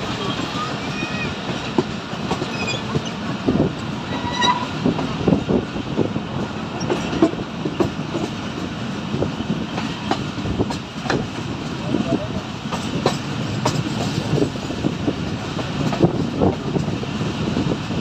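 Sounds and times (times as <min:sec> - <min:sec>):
wheels clattering over rails: 0:00.0 - 0:05.4
railcar rumbling: 0:00.0 - 0:18.0.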